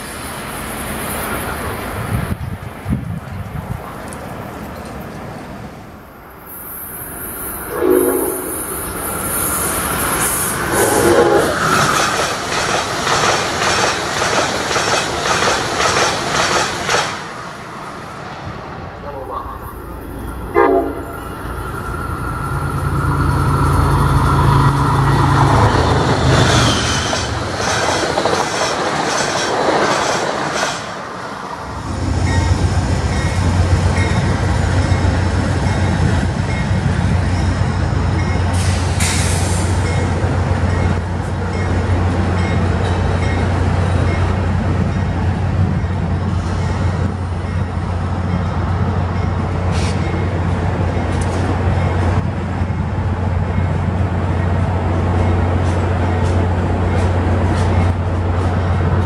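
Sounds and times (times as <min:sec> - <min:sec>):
diesel locomotives droning: 0:00.0 - 0:59.0
train horn: 0:07.7 - 0:08.8, 0:10.8 - 0:11.6, 0:20.5 - 0:21.3
wheels clacking over rail joints: 0:11.6 - 0:17.3, 0:25.2 - 0:31.2.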